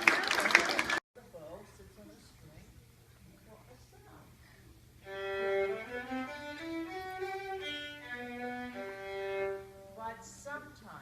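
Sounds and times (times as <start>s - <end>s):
bowed strings slow melody: 5.0s - 10.0s.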